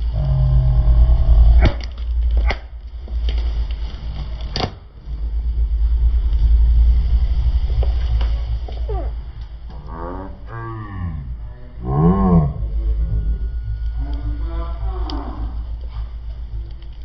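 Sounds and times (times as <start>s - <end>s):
car engine and tyre rumble: 0.0s - 9.9s
plastic toys snapping: 1.6s - 2.7s.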